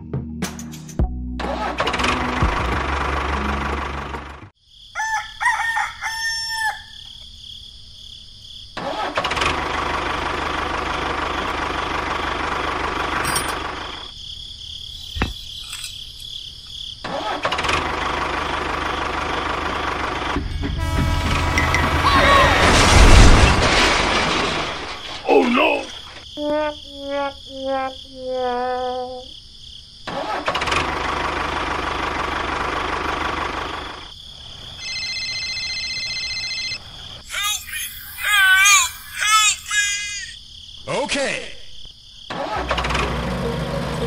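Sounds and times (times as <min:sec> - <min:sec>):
rooster crowing: 0:04.9 - 0:07.2.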